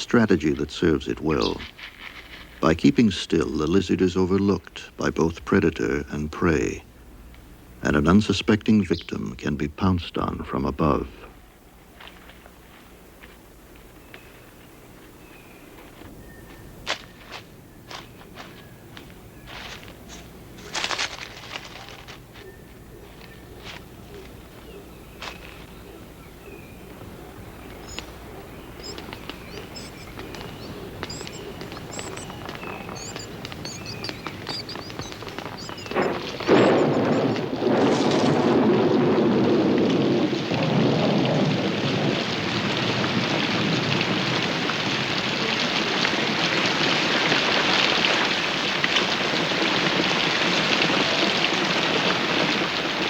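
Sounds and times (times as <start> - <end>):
birds chirping: 0.0 - 39.6
heavy rain falling: 25.4 - 53.0
thunderclap and rumble: 26.8 - 48.2.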